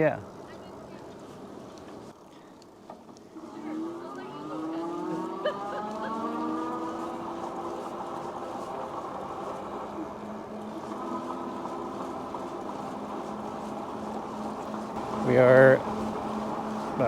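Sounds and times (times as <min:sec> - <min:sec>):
tyres and wind rumble: 0:00.0 - 0:17.0
electric motor whining: 0:03.4 - 0:17.0.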